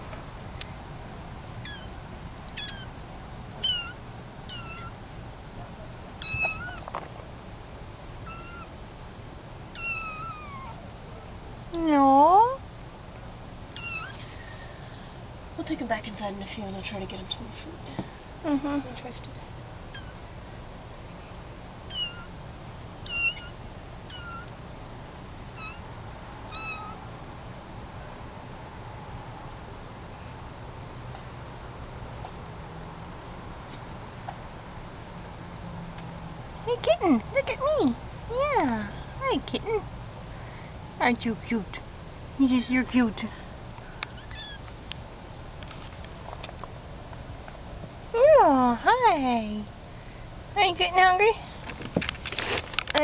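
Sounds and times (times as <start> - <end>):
kitten meowing: 1.6 - 2.9, 3.6 - 5.0, 6.2 - 6.9, 8.3 - 8.7, 9.7 - 10.8, 13.8 - 14.2, 19.9 - 20.2, 21.9 - 22.3, 23.0 - 24.5, 25.6 - 25.9, 26.5 - 27.0, 44.0 - 44.7.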